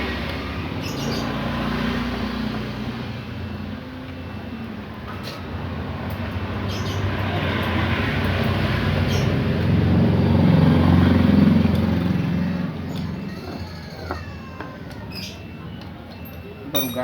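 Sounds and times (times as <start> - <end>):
vehicle engine rumbling past: 5.8 - 15.6.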